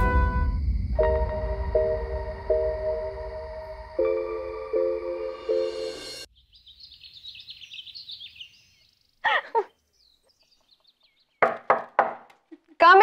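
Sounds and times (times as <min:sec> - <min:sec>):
background music: 0:00.0 - 0:06.3
small birds chirping: 0:06.3 - 0:11.8.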